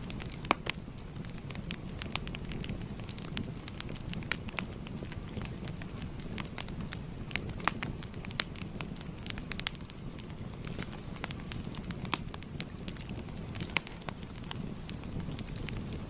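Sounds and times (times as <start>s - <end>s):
fire crackling and popping: 0.0s - 16.0s
wood fire rumbling: 0.0s - 16.0s.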